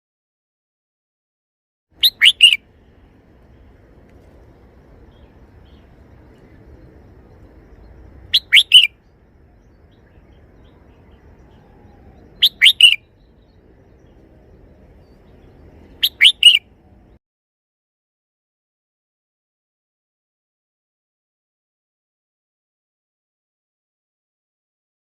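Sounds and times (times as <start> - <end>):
bulbul singing: 2.0 - 3.0, 3.6 - 17.2.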